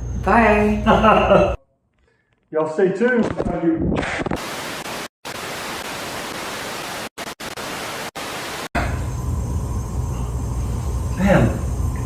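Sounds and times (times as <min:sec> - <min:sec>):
low steady hum: 0:00.0 - 0:01.6
static hiss: 0:04.2 - 0:12.0.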